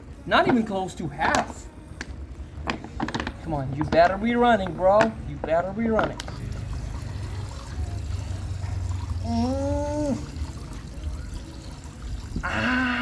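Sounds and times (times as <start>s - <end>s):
water trickling and pouring: 6.0s - 13.0s.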